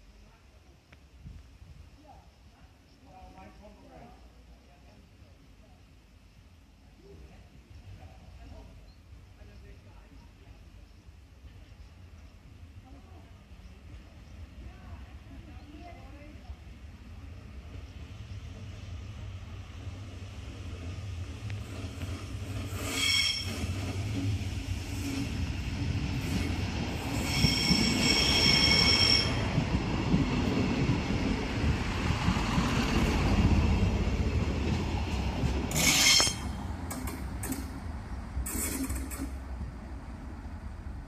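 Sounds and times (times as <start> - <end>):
train engine and wheels rumbling: 0.0 - 41.0
high-pitched wheel squealing: 22.8 - 23.7, 27.1 - 29.4, 35.7 - 36.6.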